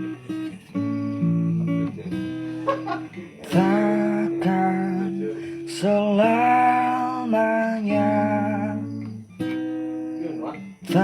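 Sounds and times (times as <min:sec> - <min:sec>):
acoustic guitar strumming: 0:00.0 - 0:11.0
man singing: 0:03.4 - 0:09.2.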